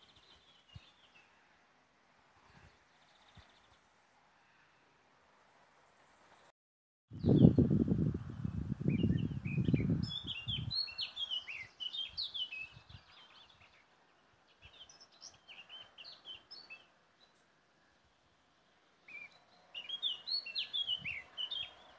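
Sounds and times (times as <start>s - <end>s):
small birds chirping: 0.0s - 1.5s, 2.4s - 4.7s, 8.3s - 21.9s
wind buffeting microphone: 7.1s - 10.9s, 12.2s - 13.2s.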